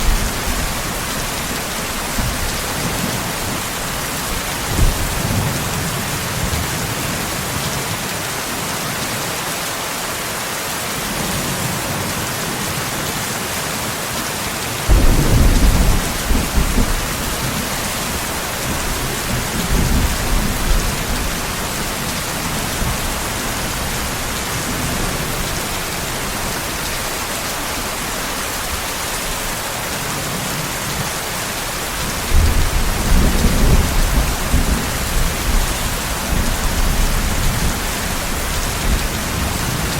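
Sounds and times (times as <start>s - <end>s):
thunder rumbles: 0.0s - 6.9s, 14.9s - 26.8s, 32.2s - 39.9s
steady rain: 0.0s - 39.9s.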